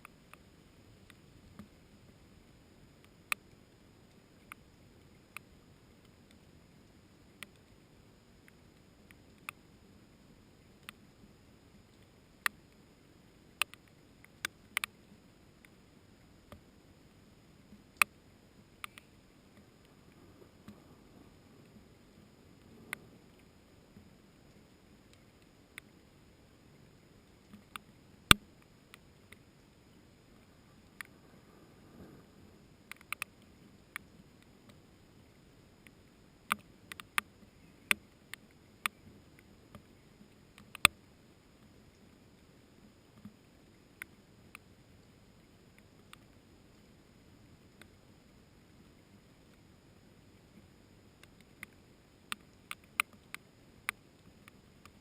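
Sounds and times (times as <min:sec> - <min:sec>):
raindrops ticking: 0:35.8 - 0:41.0.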